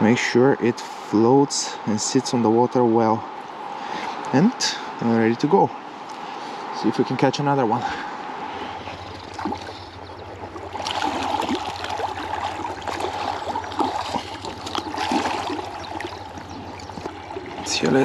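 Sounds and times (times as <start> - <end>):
river water rushing: 7.6 - 18.0.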